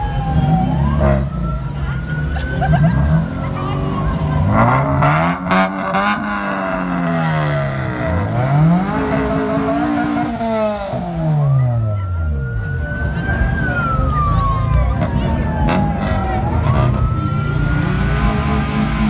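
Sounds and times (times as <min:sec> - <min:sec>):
thin siren-like wail: 0:00.0 - 0:02.8, 0:11.0 - 0:18.6
car engine revving: 0:02.6 - 0:19.0.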